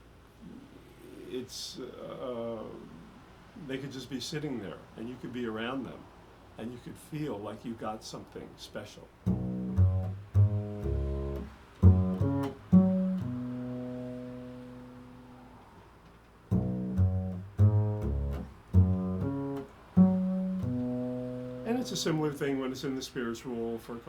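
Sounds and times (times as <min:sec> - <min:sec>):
plucked string instrument: 0:09.3 - 0:15.4, 0:16.5 - 0:22.1.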